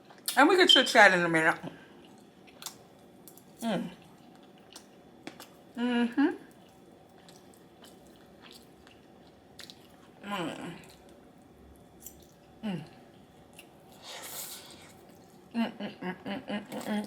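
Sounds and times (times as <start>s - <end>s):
person chewing food: 2.0s - 5.8s, 6.5s - 10.2s, 10.8s - 15.5s.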